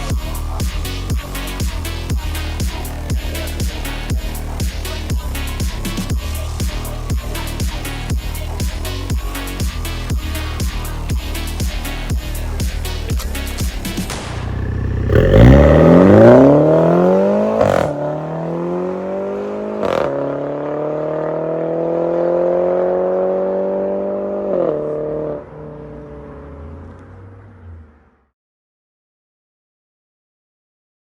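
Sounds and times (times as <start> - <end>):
car engine accelerating: 0.0 - 28.3
exhaust cracks: 12.4 - 20.2.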